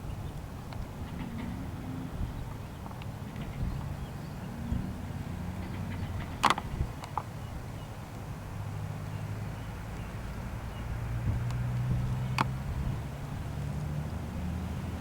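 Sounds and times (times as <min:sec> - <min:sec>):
engine rumble: 0:00.0 - 0:15.0
faint sharp clicks: 0:00.3 - 0:01.6, 0:05.6 - 0:08.3, 0:09.7 - 0:12.8.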